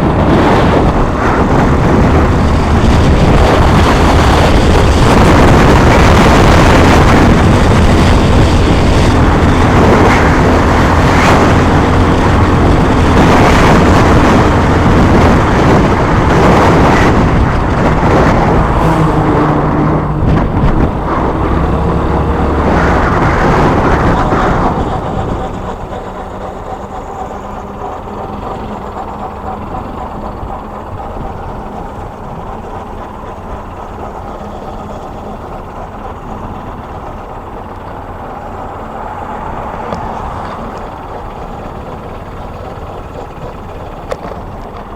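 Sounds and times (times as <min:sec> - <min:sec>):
rushing wind: 0:00.0 - 0:44.9
vehicle running noise: 0:00.0 - 0:44.9.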